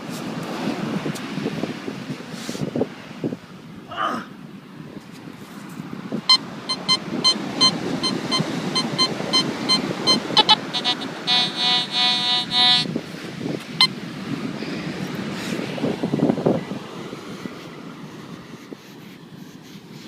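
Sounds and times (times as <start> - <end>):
wind noise: 4.8 - 19.4
metal detector beeping: 6.3 - 12.9.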